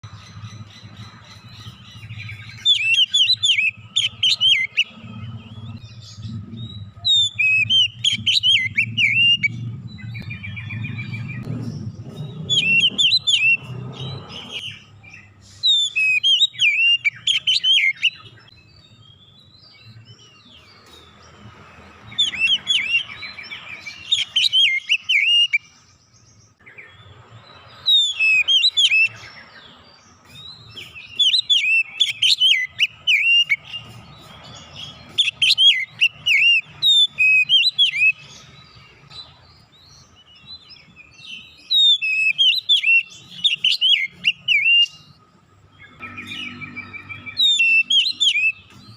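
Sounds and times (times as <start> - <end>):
bird singing whistles and chirps: 0.0 - 48.9
low hum: 4.8 - 14.8.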